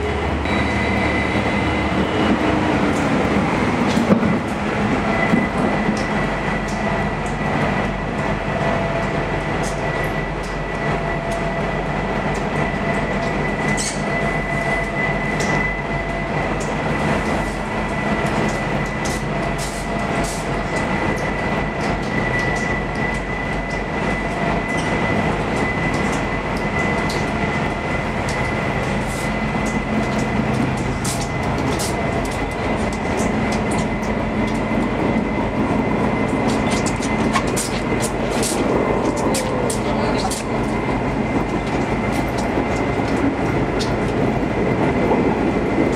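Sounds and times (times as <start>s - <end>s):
train wheels rumbling on rail: 0.0s - 45.9s
thin high whine: 0.4s - 2.6s.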